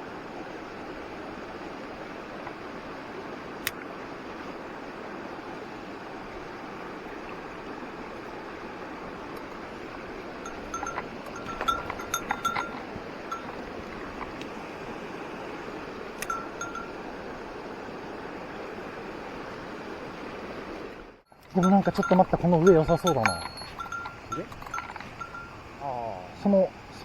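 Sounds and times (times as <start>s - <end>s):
small metal bell jingling: 10.4s - 14.4s, 16.2s - 17.0s, 21.3s - 25.7s.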